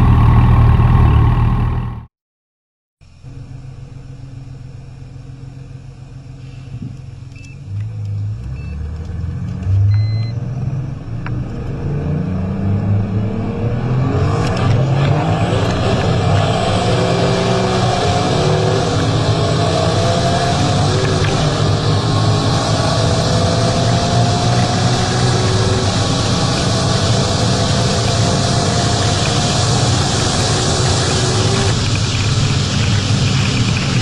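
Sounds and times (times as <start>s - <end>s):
car engine accelerating hard: 0.0s - 2.1s, 7.7s - 34.0s
car engine idling and revving: 0.0s - 2.1s, 3.0s - 34.0s.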